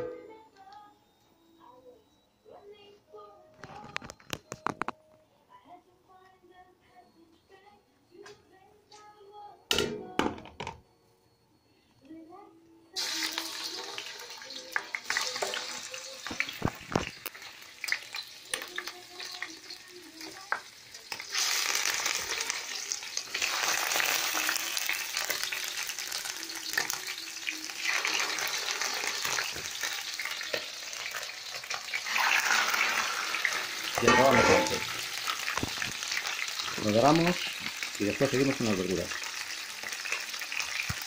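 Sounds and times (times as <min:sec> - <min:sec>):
meat sizzling in oil: 0:13.0 - 0:41.0.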